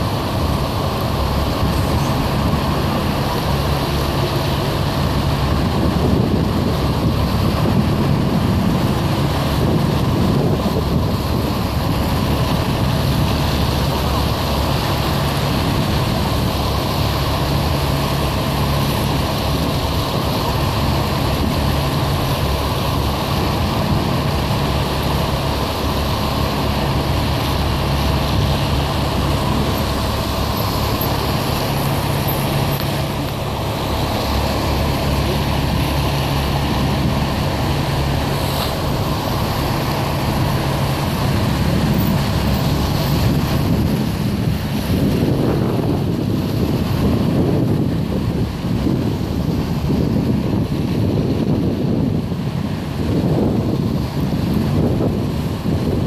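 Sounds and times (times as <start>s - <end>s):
traffic engine hum: 0.0s - 56.0s.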